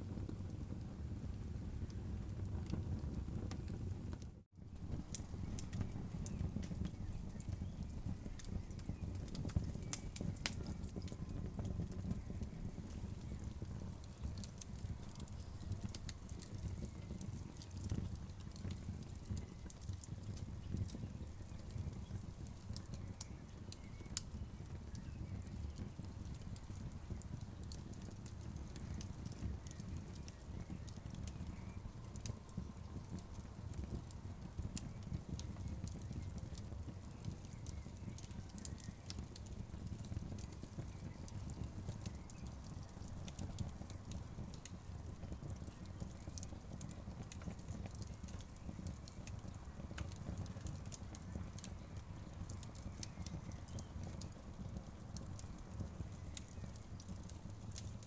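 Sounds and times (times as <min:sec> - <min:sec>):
wood fire crackling: 0:00.0 - 0:58.0
sharp pops and snaps: 0:34.7 - 0:58.0.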